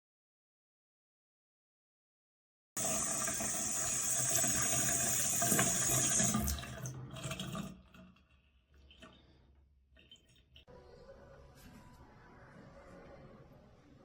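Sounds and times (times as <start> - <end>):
water running from faucet into sink: 2.8 - 8.0.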